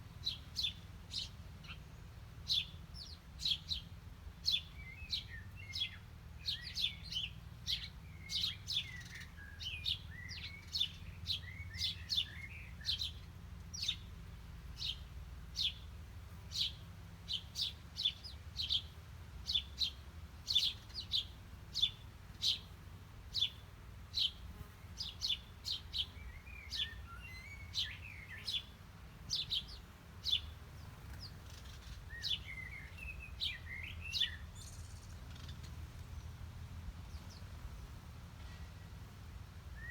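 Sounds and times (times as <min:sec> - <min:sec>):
songbirds chirping: 0:00.0 - 0:39.9
soft bird twittering: 0:31.2 - 0:35.8.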